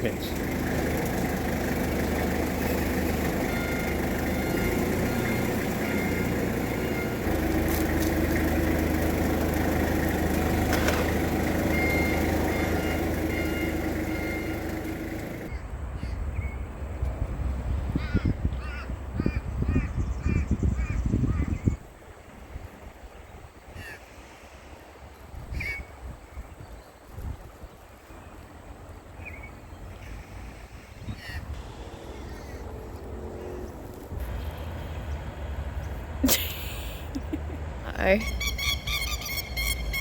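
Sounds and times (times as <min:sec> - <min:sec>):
vehicle engine running: 0:00.0 - 0:15.6, 0:31.5 - 0:40.0
birds calling: 0:00.0 - 0:16.7, 0:27.8 - 0:40.0.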